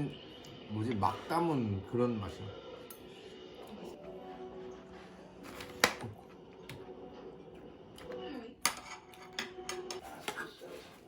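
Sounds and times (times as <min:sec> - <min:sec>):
utensils clinking against dish: 0:08.6 - 0:10.6.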